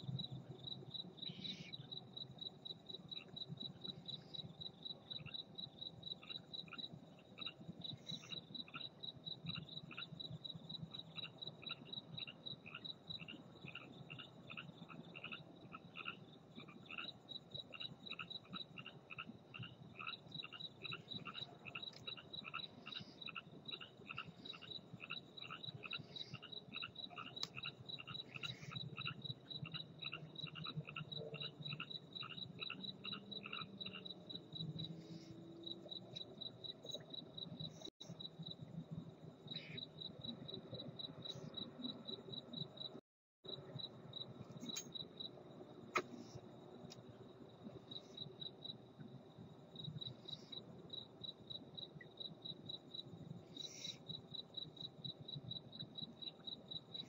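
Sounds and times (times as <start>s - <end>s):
cricket chirping: 0.0s - 57.0s
frog calling: 10.9s - 34.1s.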